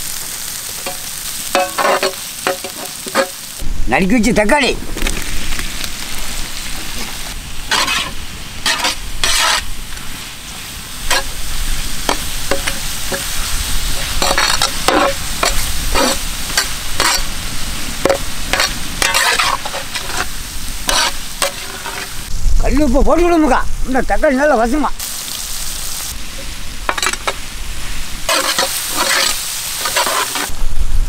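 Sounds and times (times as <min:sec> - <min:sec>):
vegetables sizzling in hot oil: 0:00.0 - 0:22.3, 0:25.0 - 0:30.7
metal spatula scraping a pan: 0:00.8 - 0:03.5, 0:07.7 - 0:09.7, 0:11.0 - 0:11.4, 0:12.0 - 0:17.3, 0:18.0 - 0:22.2, 0:28.3 - 0:30.5.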